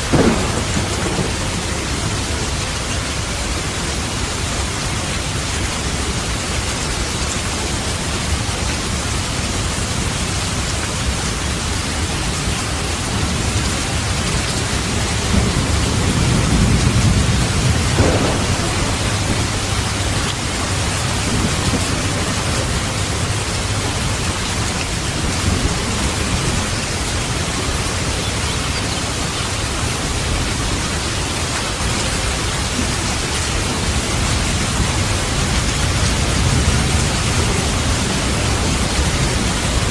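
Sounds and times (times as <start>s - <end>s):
thunder rolling: 0.0s - 3.6s, 13.4s - 28.2s
heavy rain: 0.0s - 39.9s.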